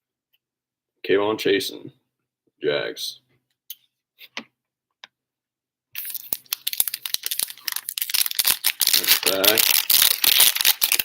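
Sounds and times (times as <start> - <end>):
wrapper tearing and crinkling: 6.0 - 11.0.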